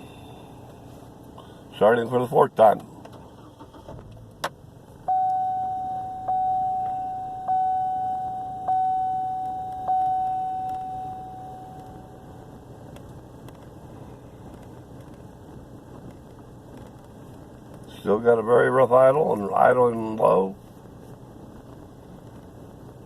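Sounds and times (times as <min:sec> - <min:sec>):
truck engine idling rough: 0:00.0 - 0:23.0
dashboard warning chime: 0:05.1 - 0:12.6.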